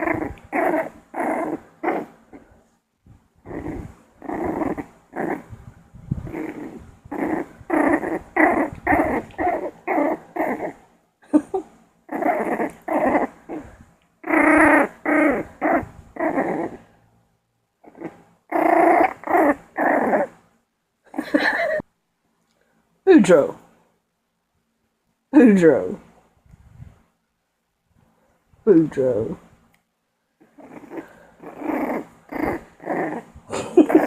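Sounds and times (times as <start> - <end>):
puppy growling: 0.0 - 2.7, 3.4 - 17.0, 17.8 - 20.4, 30.4 - 34.0.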